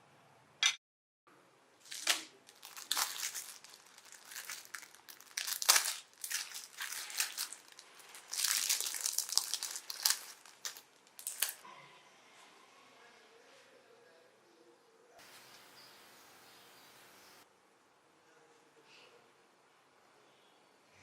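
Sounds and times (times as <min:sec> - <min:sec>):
wrapping material crinkling: 0:01.8 - 0:11.6.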